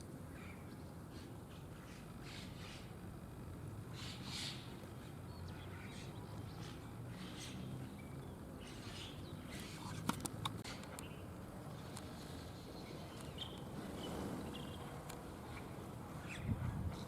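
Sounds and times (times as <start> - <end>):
bird chirps: 12.6 - 14.9.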